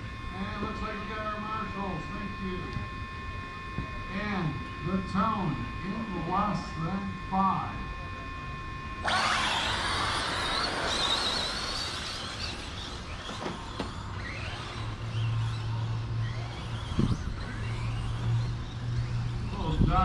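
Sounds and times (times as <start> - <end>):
rc truck motors whining: 8.9 - 20.0.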